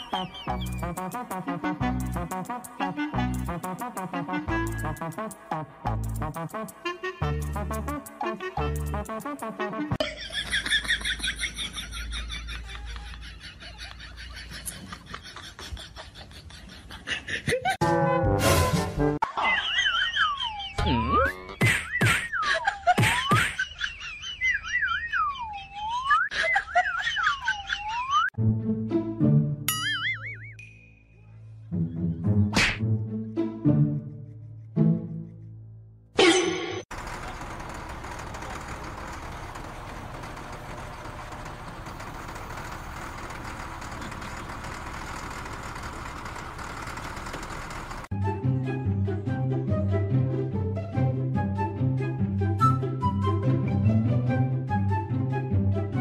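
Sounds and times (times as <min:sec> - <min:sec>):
warbling cartoon whistle: 0:24.3 - 0:28.3
grader engine idling: 0:36.9 - 0:48.1.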